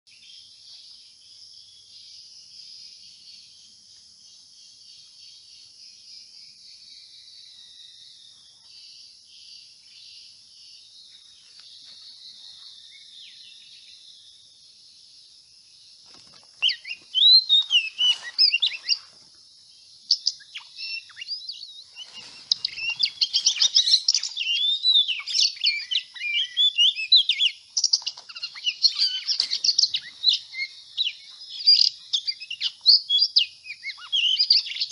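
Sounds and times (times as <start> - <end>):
faint bird chorus: 0.0 - 34.9
bird singing loud chirps: 0.1 - 34.9.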